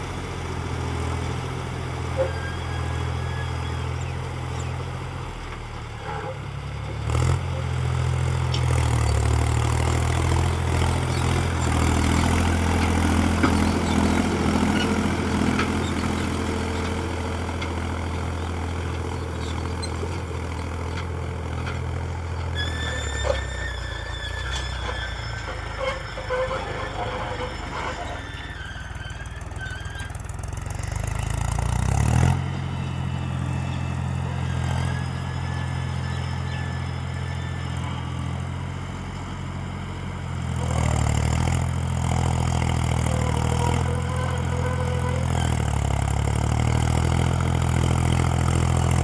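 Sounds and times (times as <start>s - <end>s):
tractor engine running: 0.0s - 49.0s
high squeal: 2.0s - 5.0s, 9.0s - 31.4s, 32.8s - 38.7s, 43.0s - 46.1s.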